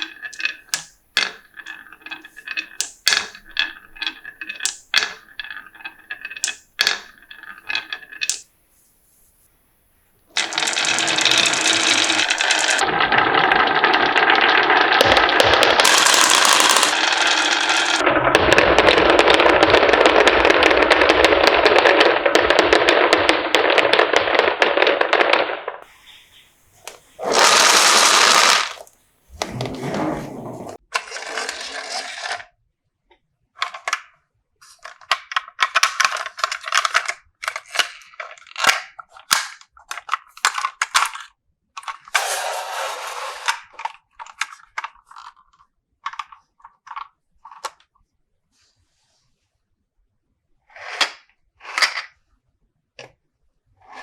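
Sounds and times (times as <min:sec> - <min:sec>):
marbles clattering down wooden track: 0:00.0 - 0:08.5, 0:10.4 - 0:26.3, 0:26.9 - 0:32.4, 0:42.1 - 0:44.0.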